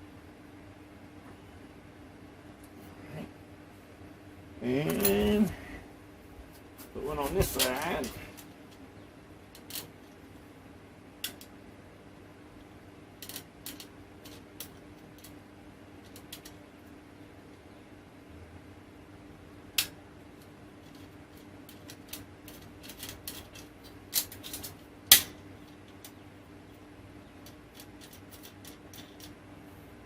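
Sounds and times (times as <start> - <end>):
faint steady hum: 0.0 - 30.0
metal parts clicking and clinking: 4.9 - 5.6, 7.1 - 8.8, 9.5 - 9.9, 13.2 - 15.4, 16.0 - 16.6, 20.8 - 26.2, 27.4 - 29.4.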